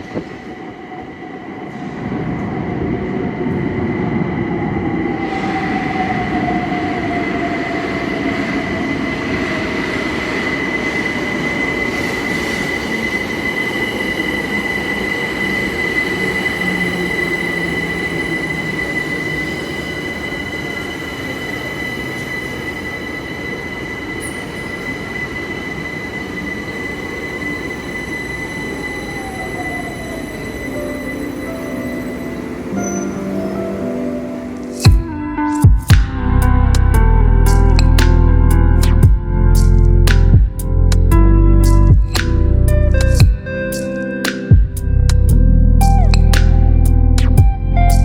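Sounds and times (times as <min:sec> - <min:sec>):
train wheel squeal: 0:00.0 - 0:35.9
train running noise: 0:00.0 - 0:48.0
low whine falling in pitch: 0:34.8 - 0:48.0.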